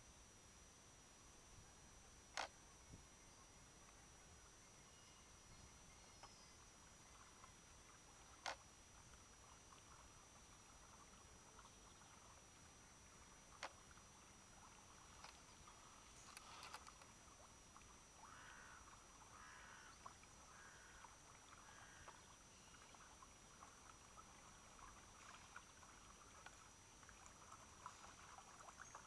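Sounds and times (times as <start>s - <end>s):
faint clicks: 8.2s - 8.7s, 15.2s - 17.2s.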